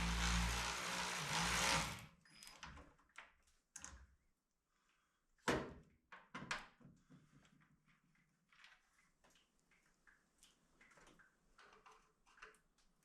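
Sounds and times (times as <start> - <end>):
machine humming: 0.0 - 2.0.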